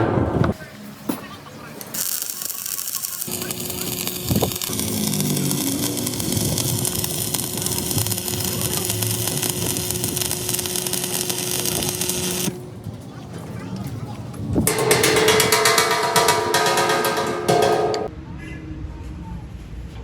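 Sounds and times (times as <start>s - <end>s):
machinery running: 2.9s - 12.8s, 14.7s - 18.1s
sharp knock: 14.7s - 18.1s.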